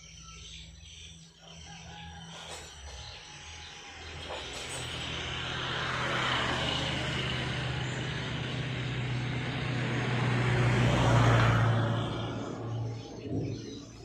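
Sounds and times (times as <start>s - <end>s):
vehicle passing by: 3.3s - 14.0s.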